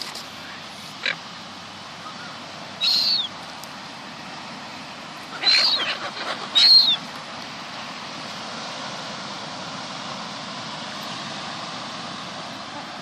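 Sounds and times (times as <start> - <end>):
seagulls crying: 2.0 - 3.4, 5.3 - 7.1.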